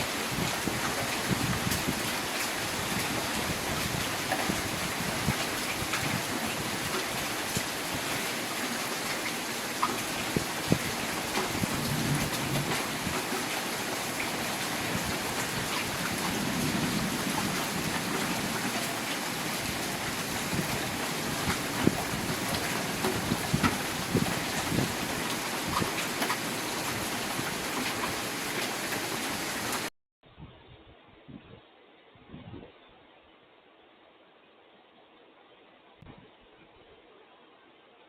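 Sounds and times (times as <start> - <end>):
raindrops ticking on surface: 0.0 - 29.9
steady rain hiss: 0.0 - 29.9.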